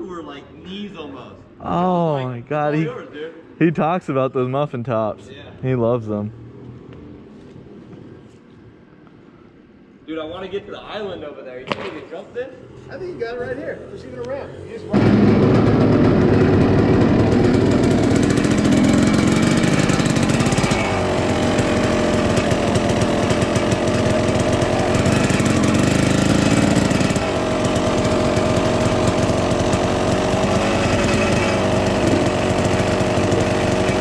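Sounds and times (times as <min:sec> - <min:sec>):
dirt bike engine running: 0:14.9 - 0:34.0.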